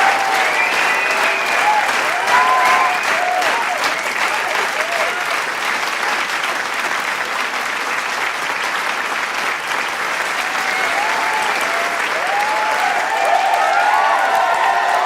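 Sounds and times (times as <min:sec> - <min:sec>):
shouts and whoops: 0:00.0 - 0:05.2, 0:10.4 - 0:15.0
crowd applauding: 0:00.0 - 0:15.0.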